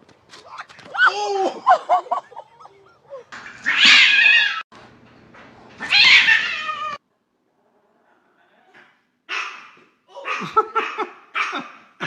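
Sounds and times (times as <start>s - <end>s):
harsh animal cries: 2.7s - 4.6s, 5.8s - 7.0s.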